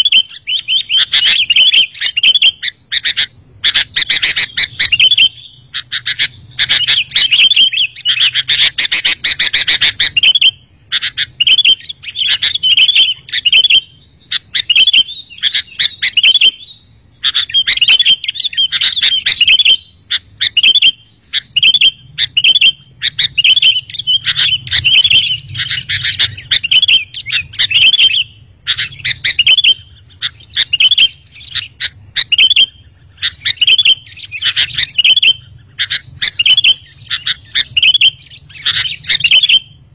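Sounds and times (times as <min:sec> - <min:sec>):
bulbul chirping song: 0:00.0 - 0:39.9.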